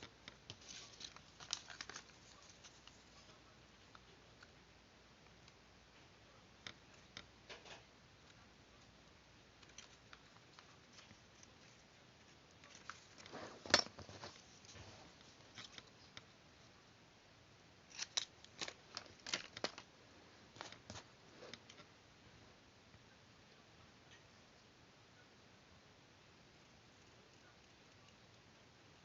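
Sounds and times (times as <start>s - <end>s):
scissors snipping paper: 0.2s - 3.3s.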